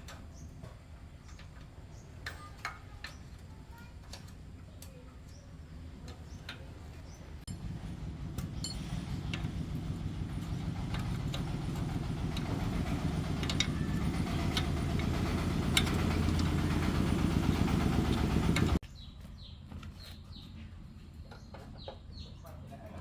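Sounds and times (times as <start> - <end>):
small gasoline engine running: 7.5 - 18.8.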